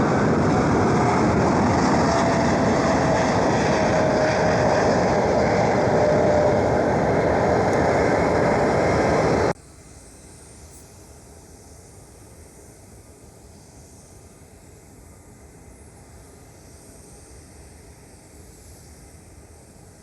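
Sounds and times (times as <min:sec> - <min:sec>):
jet engine roaring: 0:00.0 - 0:09.6
steady hiss: 0:09.5 - 0:20.0.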